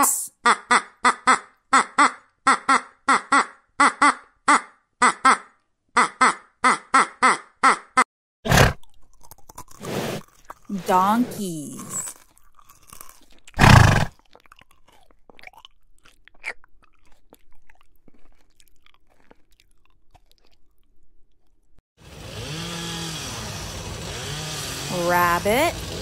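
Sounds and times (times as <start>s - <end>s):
animal chewing and crunching: 8.7s - 21.8s.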